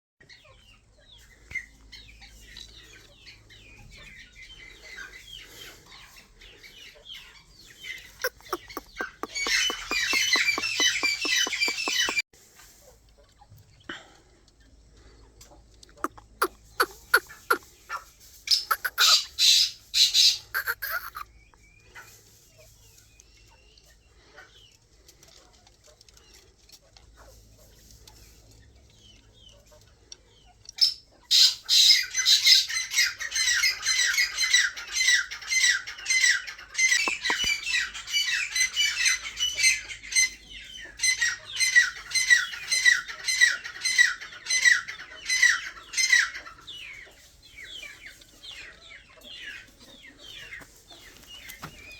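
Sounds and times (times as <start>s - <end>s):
quail calling: 7.8s - 12.2s, 15.9s - 21.3s, 31.4s - 39.8s.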